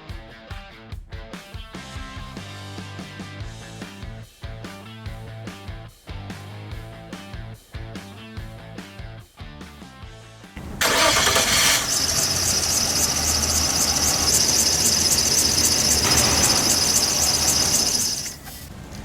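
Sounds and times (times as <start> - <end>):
car engine starting and running: 10.6 - 19.0
high-pitched pulsing sound: 11.0 - 18.4.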